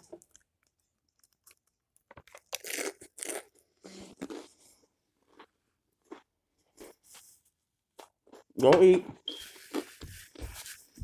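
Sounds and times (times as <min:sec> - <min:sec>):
tortilla chips crunching: 0:00.1 - 0:07.0.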